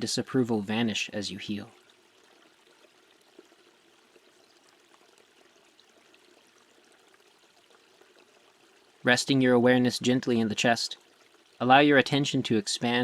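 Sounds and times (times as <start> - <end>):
faint running water: 0.0 - 13.0.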